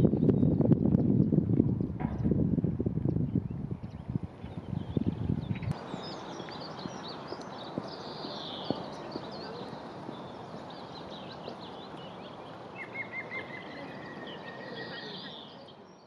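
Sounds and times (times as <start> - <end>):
songbirds singing and chirping: 0.0 - 16.0.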